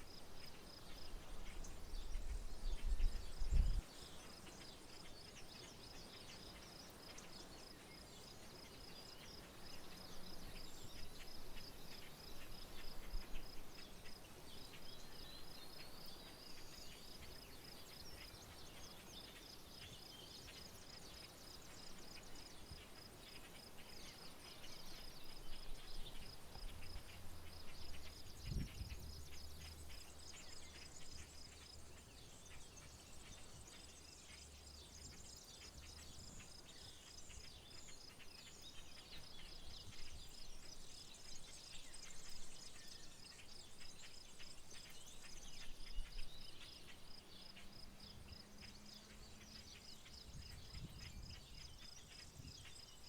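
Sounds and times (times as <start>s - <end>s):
faint steady hiss: 0.0s - 53.0s
birds calling and chirping: 0.1s - 53.0s.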